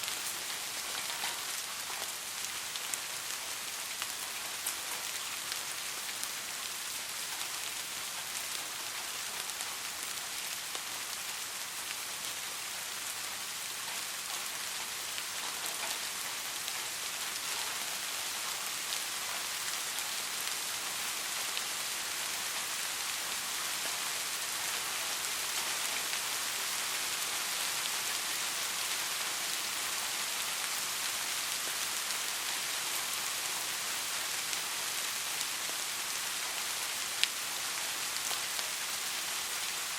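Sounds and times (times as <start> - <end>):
soft rain falling: 0.0 - 39.9.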